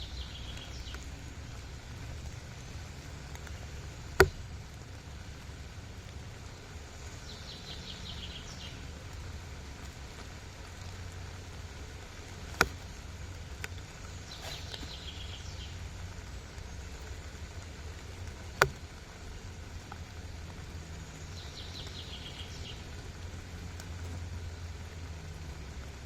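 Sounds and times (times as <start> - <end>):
sharp wooden cracks: 3.2 - 4.8, 12.3 - 15.2, 18.3 - 19.1.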